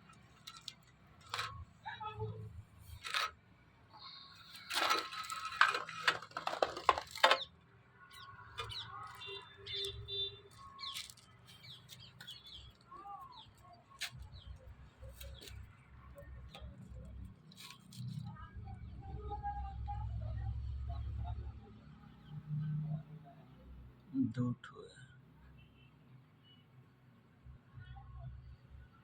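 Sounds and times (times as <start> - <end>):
small birds chirping: 7.3 - 15.8.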